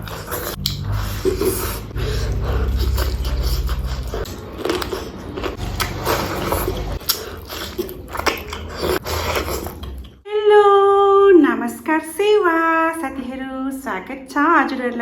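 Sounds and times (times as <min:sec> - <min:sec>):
biting and chewing: 0:00.0 - 0:10.2.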